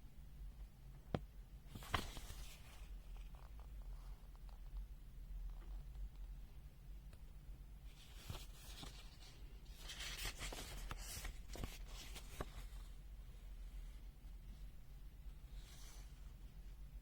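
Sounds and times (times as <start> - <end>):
low steady hum: 0.0 - 17.0
rustling and clicks of small items: 1.1 - 6.4, 8.0 - 12.9.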